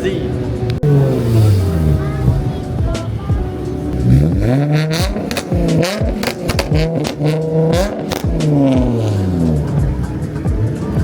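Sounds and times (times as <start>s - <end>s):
car engine revving: 0.0s - 11.0s
exhaust pops: 4.0s - 11.0s.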